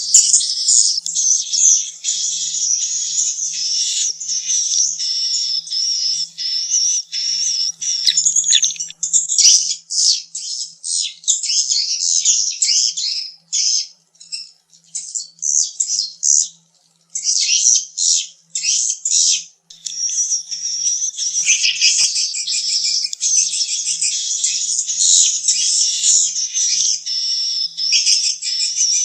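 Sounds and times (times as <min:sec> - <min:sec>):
swiftlets twittering: 0:00.0 - 0:09.0
short bird chirps: 0:00.0 - 0:09.1, 0:19.8 - 0:29.0.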